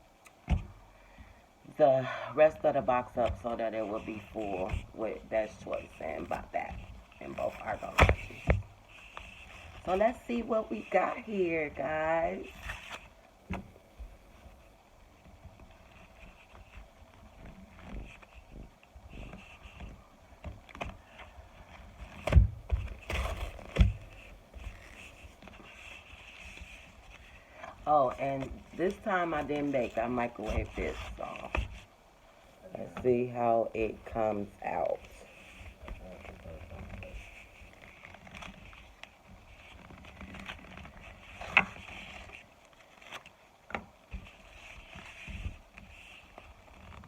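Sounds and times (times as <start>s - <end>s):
box rustling: 3.1s - 14.7s, 15.3s - 31.9s.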